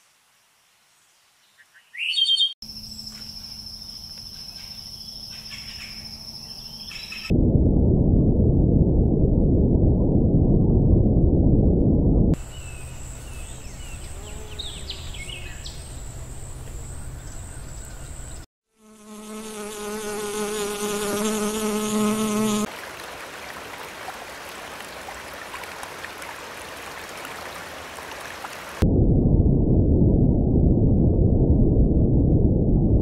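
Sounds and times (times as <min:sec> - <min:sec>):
low hum: 0:07.3 - 0:14.0, 0:28.8 - 0:33.0
high insect whine: 0:12.4 - 0:22.7
bumblebee buzzing in flight: 0:13.0 - 0:16.7, 0:18.8 - 0:22.7
small rocky stream rushing: 0:22.7 - 0:28.8.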